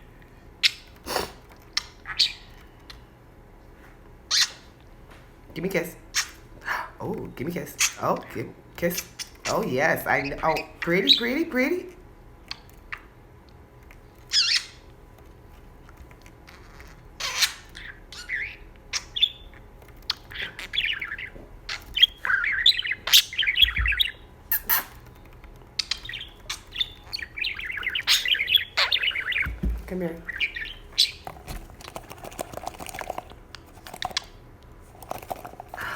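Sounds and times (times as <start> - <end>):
budgerigar chattering and warbling: 14.3 - 14.8, 16.5 - 19.5, 20.1 - 25.1, 25.8 - 33.2.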